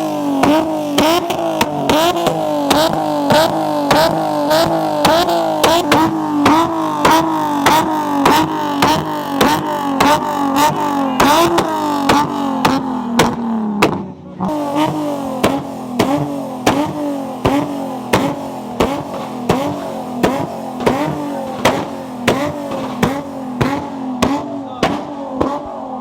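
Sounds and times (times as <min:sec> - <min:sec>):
car engine bouncing off rev limiter: 0:00.0 - 0:26.0.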